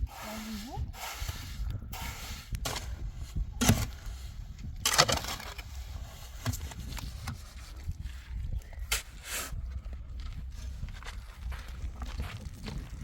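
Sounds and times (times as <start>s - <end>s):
steady outdoor background: 0.0s - 13.0s
sharp knocks and scrapes: 0.2s - 8.0s.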